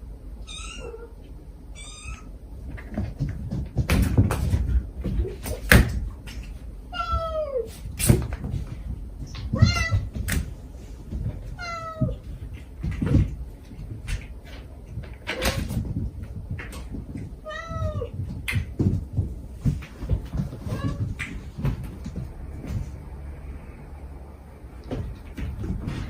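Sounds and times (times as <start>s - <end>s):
cat meowing: 0.4s - 2.3s, 6.9s - 7.7s, 9.4s - 10.1s, 11.5s - 12.2s, 17.4s - 18.2s, 20.6s - 21.2s
knocks and bumps: 2.6s - 23.5s, 24.8s - 26.0s.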